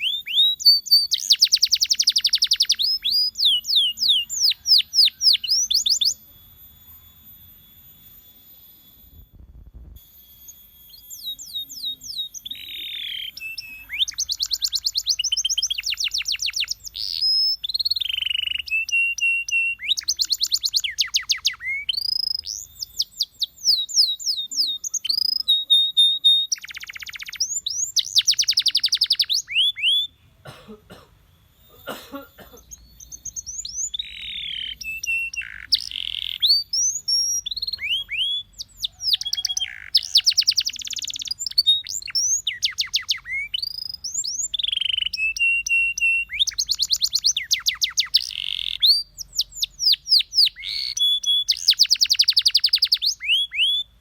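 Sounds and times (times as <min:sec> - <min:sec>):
canary singing: 0:00.0 - 0:30.5, 0:31.2 - 0:54.0.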